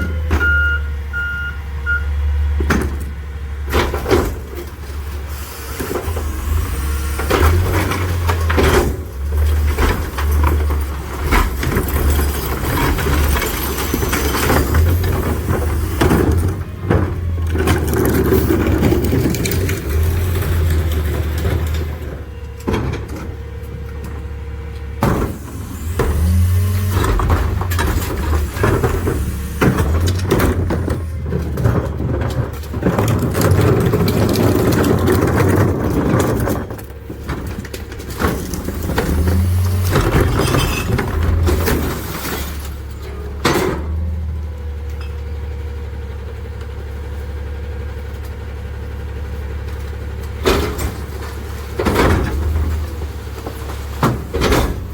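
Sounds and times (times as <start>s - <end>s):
garbage truck engine droning: 0.0s - 54.9s
recyclables clattering into hopper: 5.9s - 24.2s, 25.0s - 45.7s, 49.0s - 54.9s.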